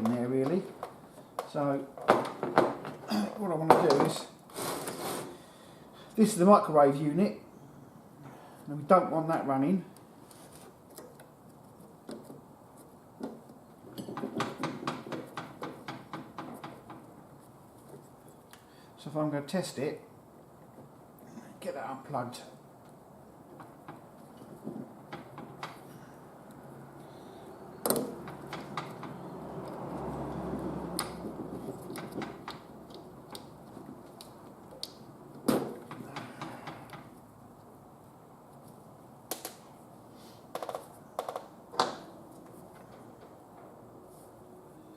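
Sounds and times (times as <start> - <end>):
parts knocking in metal casing: 13.2 - 17.2, 27.8 - 29.4
tools clicking and knocking: 13.2 - 17.2, 22.8 - 25.9, 27.8 - 30.1, 30.9 - 37.2.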